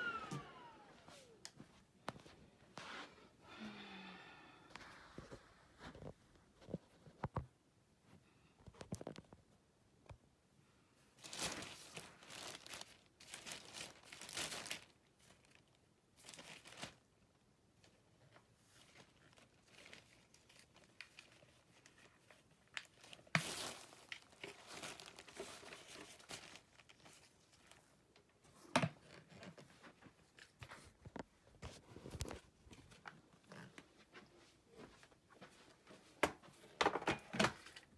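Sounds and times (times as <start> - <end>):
plastic rustling and crinkling: 11.2 - 17.1, 17.8 - 37.9.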